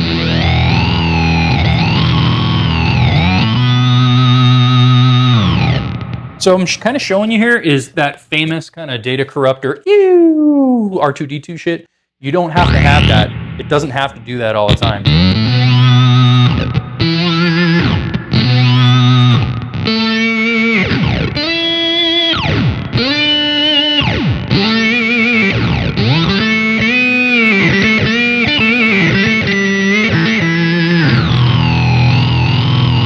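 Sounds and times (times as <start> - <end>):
buzzy sustained guitar tone: 0.0 - 6.4, 12.6 - 33.0
electric guitar synth notes: 0.0 - 6.4, 12.6 - 13.9, 14.7 - 33.0.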